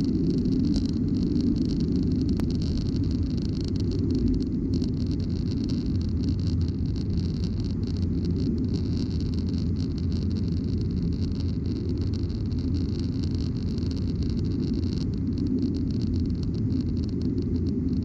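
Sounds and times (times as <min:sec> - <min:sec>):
aircraft engine and airflow rumble: 0:00.0 - 0:05.7
steady hiss: 0:00.0 - 0:18.0.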